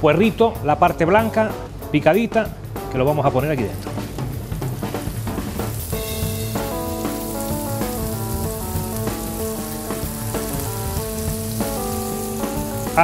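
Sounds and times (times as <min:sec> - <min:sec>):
background music melody: 0:00.0 - 0:13.0
leek sizzling in a frying pan: 0:03.5 - 0:13.0.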